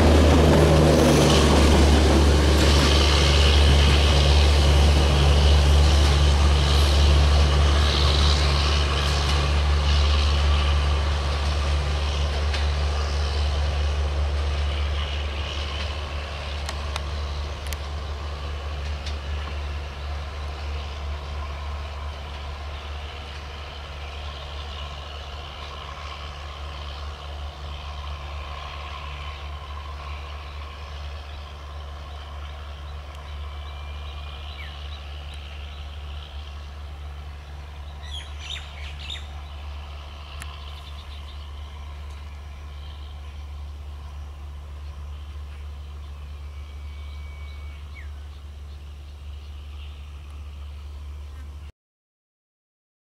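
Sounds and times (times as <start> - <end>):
diesel locomotive drone: 0.0 - 51.7
bird chirps: 38.0 - 39.6.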